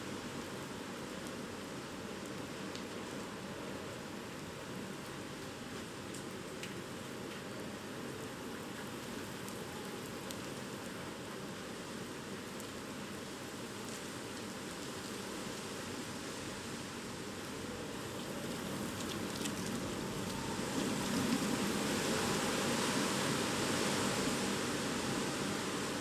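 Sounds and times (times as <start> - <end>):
wind and rain rushing: 11.8 - 26.0.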